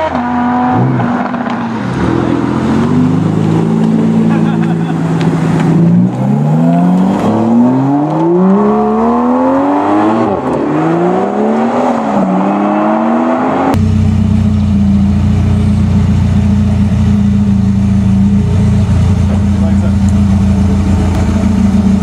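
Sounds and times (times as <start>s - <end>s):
car engine accelerating hard: 0.0s - 22.0s
car engine idling: 13.7s - 22.0s.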